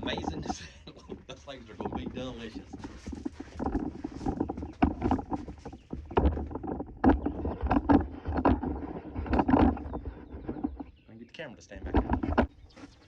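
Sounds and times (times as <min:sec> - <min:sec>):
camera handling knocks and bumps: 0:02.8 - 0:10.9, 0:11.9 - 0:13.0.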